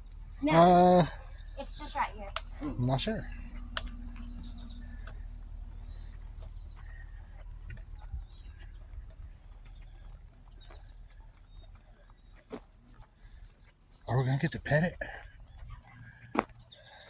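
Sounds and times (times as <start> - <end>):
high-pitched insect chorus: 0.0 - 17.0
low rumble: 1.1 - 11.3.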